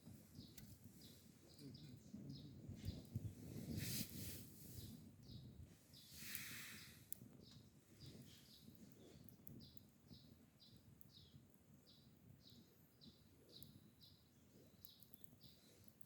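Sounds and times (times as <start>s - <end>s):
soft low crackle: 0.0s - 16.0s
small bird calling: 4.7s - 16.0s.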